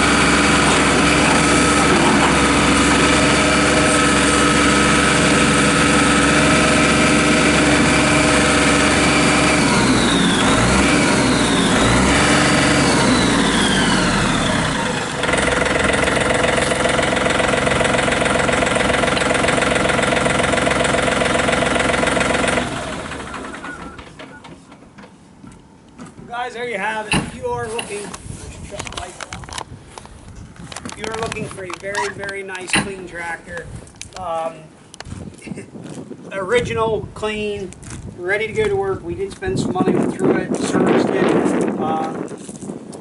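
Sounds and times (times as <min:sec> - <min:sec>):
tractor diesel engine running: 0:00.0 - 0:25.3.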